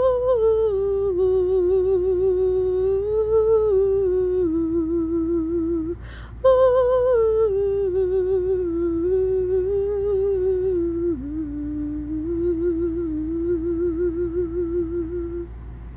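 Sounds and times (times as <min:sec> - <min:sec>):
woman humming: 0:00.0 - 0:15.5
quick breath: 0:06.0 - 0:06.4.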